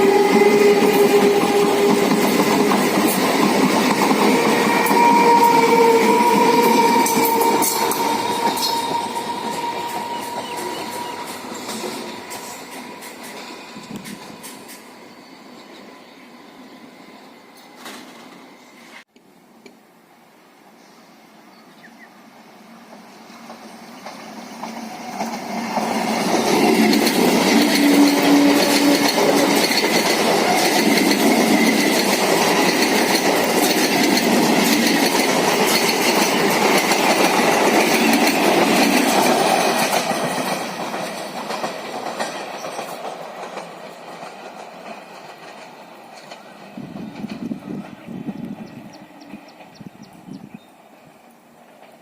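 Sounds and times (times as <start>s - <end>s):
passenger train passing: 0.0s - 19.1s, 20.2s - 52.0s
wheels clattering over rail joints: 23.5s - 47.8s.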